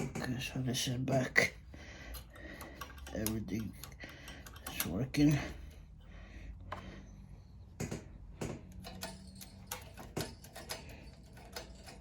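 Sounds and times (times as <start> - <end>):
tools and small parts clicking: 2.0 - 6.0, 7.7 - 12.0
sharp knocks: 7.8 - 8.8.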